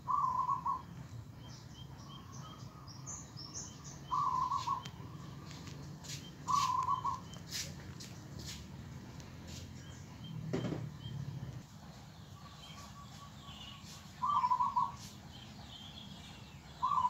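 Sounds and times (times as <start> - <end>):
bird warbling call: 0.0 - 1.0, 1.8 - 7.7, 12.4 - 17.0
small bird chirps: 0.0 - 17.0
steady low hum: 0.0 - 17.0
brief thump: 10.5 - 10.9.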